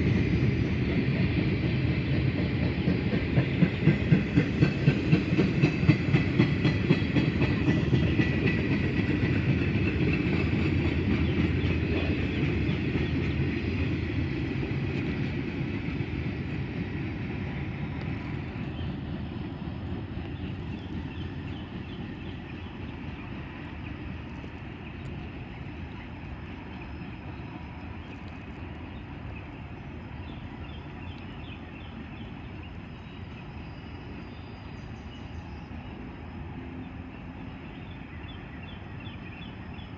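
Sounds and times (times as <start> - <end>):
train wheels clicking: 0.0 - 28.9
freight train rumble: 0.0 - 39.9.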